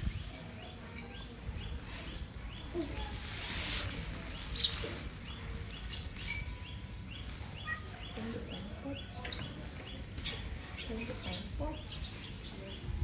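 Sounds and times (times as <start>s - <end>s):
small bird chirping: 0.0s - 13.0s
rustling: 2.7s - 8.3s.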